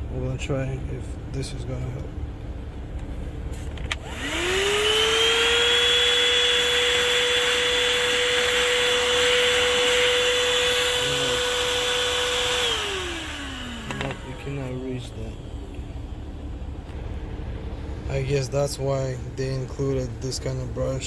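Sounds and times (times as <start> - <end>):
air rushing through nozzle: 3.6 - 14.6
vacuum cleaner motor whine: 3.9 - 15.6.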